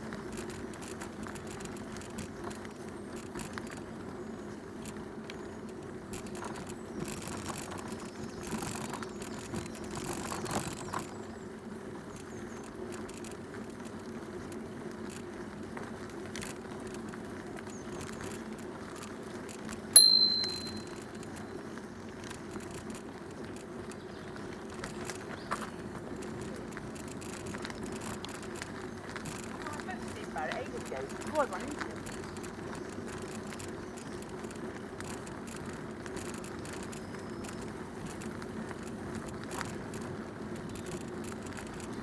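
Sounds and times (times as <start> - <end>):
bicycle rolling: 0.0 - 42.0
bicycle bell ding: 20.0 - 21.0.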